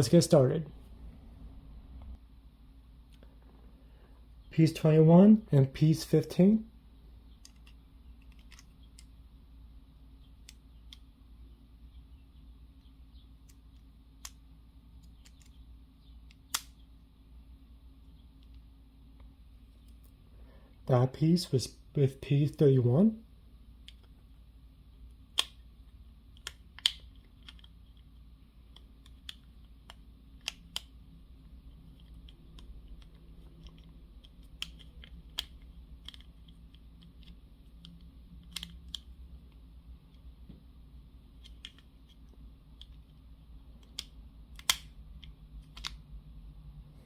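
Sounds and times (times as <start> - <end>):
low room hum: 0.0 - 47.0.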